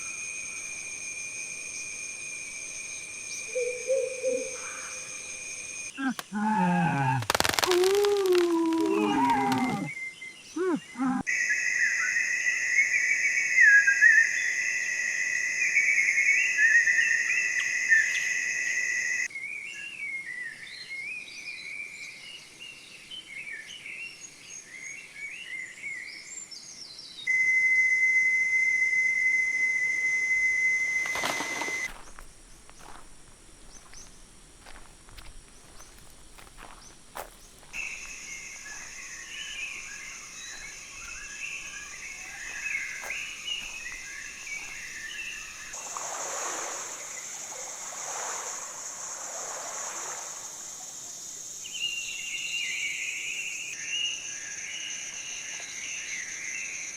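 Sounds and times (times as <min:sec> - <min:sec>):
high whistling drone: 0:00.0 - 0:05.9, 0:27.3 - 0:31.9, 0:36.6 - 0:45.8
birds chirping and calling: 0:03.3 - 0:05.4, 0:33.7 - 0:45.8.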